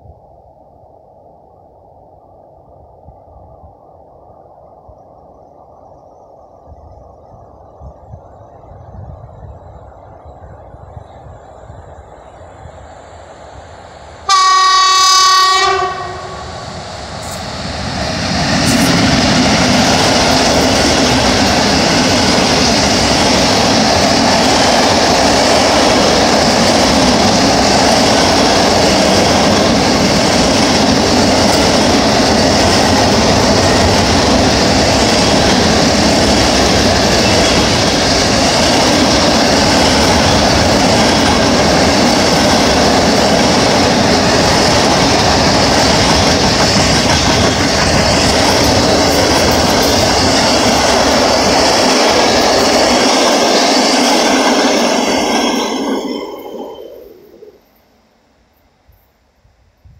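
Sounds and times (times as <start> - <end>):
train wheels rumbling on rail: 3.1 - 57.5
locomotive horn: 14.3 - 16.5.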